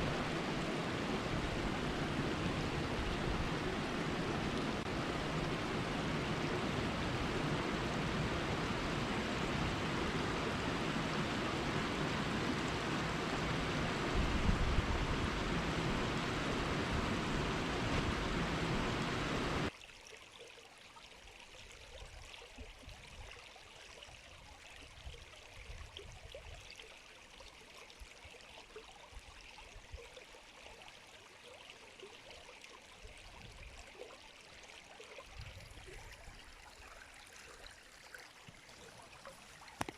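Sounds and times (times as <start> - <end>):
river water rushing: 0.0 - 19.7.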